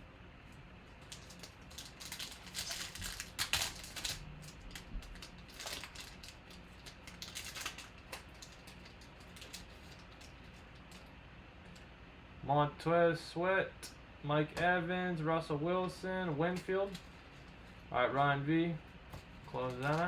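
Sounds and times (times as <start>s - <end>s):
wrappers crinkling: 0.9s - 11.1s, 19.3s - 20.0s.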